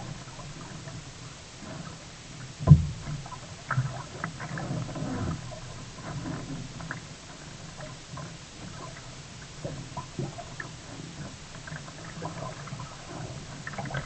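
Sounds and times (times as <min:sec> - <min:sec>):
water gurgling around kayak: 0:00.0 - 0:14.0.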